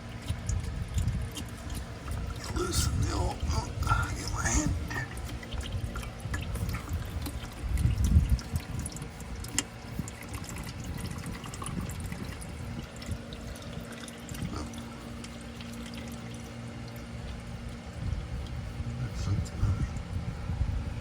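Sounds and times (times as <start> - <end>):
oil trickling into drain pan: 4.4 - 18.0.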